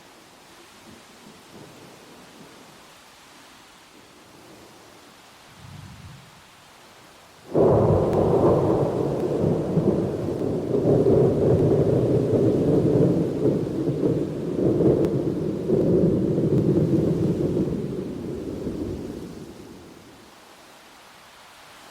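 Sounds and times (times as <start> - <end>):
faint steady hiss: 0.0 - 21.9
thunderclap and rolling rumble: 5.5 - 6.4, 7.5 - 19.9.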